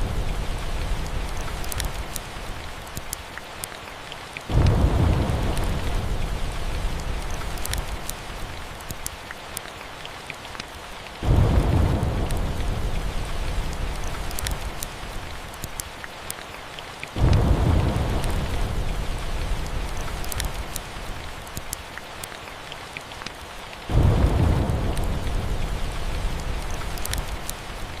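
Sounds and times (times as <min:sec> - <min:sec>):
fireplace crackling: 0:00.0 - 0:03.2, 0:04.5 - 0:09.2, 0:11.2 - 0:15.9
steady rain: 0:00.0 - 0:28.0
thunder rolls: 0:04.5 - 0:07.8, 0:11.2 - 0:14.8, 0:17.2 - 0:20.5, 0:23.9 - 0:27.5.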